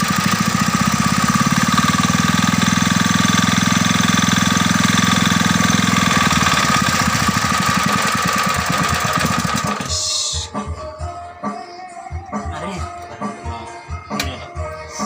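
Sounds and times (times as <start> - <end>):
diesel engine knocking: 0.0 - 10.0.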